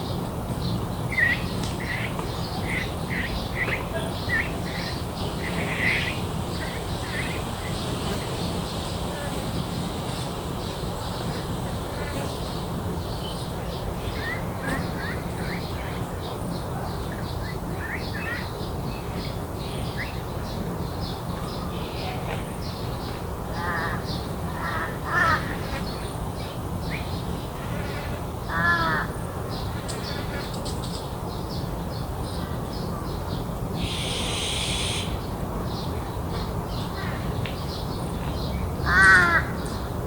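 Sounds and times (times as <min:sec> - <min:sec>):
small birds chirping: 0:00.2 - 0:39.9
crow cawing: 0:23.6 - 0:25.5, 0:28.5 - 0:29.1, 0:33.8 - 0:35.2, 0:38.9 - 0:39.5.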